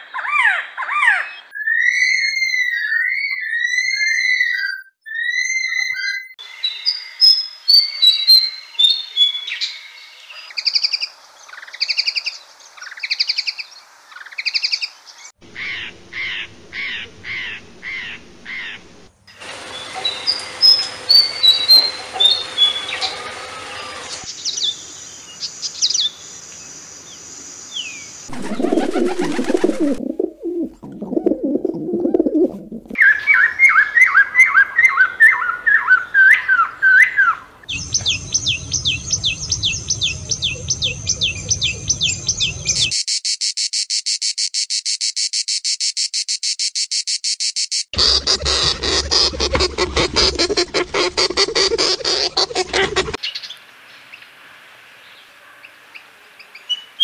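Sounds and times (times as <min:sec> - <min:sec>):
bird warbling: 0:15.4 - 0:24.3, 0:28.3 - 0:33.5, 0:48.0 - 0:53.2
low bird calls: 0:15.4 - 0:24.3, 0:48.0 - 0:53.3
rapid repeated bird chirps: 0:19.6 - 0:24.8, 0:37.7 - 0:53.4.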